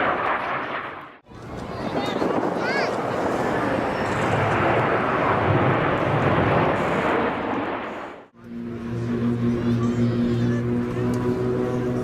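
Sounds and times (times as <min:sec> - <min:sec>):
jet aircraft roaring overhead: 0:00.0 - 0:12.0
steady low drone: 0:05.1 - 0:12.0.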